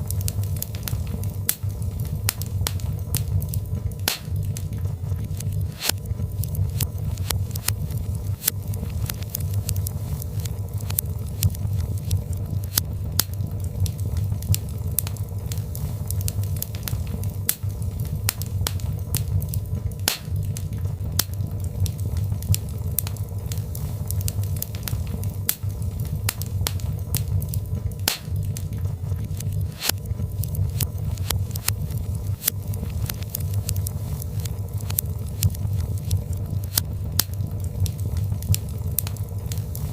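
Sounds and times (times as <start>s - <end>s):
fire crackling and popping: 0.0s - 39.9s
fire roaring: 0.0s - 39.9s.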